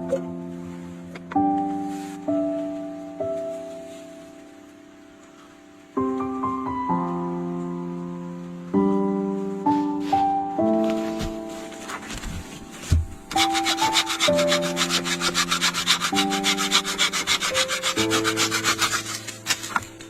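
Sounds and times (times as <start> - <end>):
soft piano music: 0.0 - 20.0
hand tool scraping on wood: 11.8 - 20.0.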